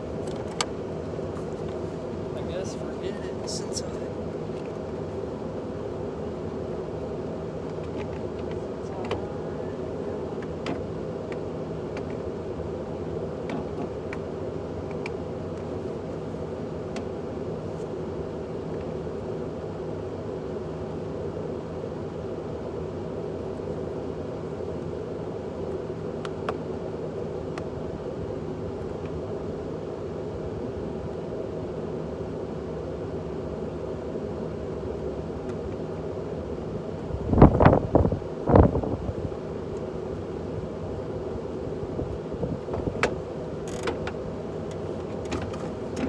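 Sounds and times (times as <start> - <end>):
vehicle engine and road noise: 0.0 - 19.3, 35.0 - 46.0.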